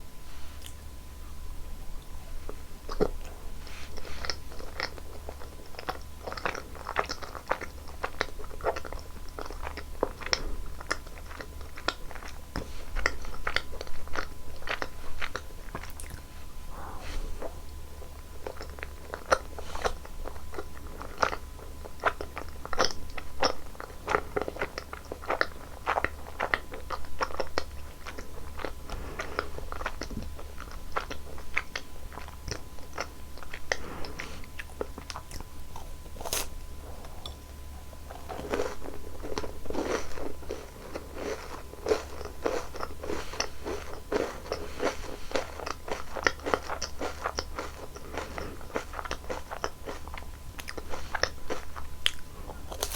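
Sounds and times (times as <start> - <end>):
biting and chewing: 2.0 - 16.3, 17.2 - 52.9
crisp crackles and smacks: 38.0 - 52.9.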